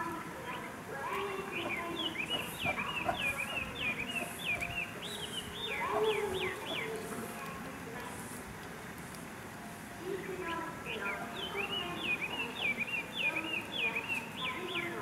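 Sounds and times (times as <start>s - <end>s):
bird calling in high notes: 1.5s - 7.1s.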